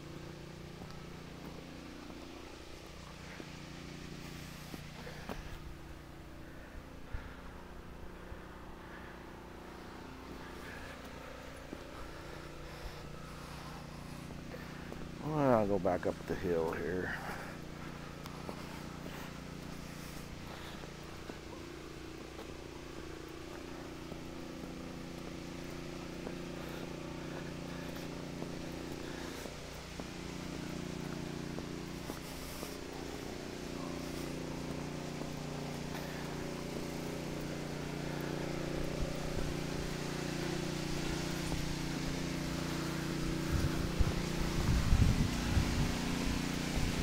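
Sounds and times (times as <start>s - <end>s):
engine humming: 0.0s - 47.0s
wind buffeting microphone: 43.5s - 47.0s.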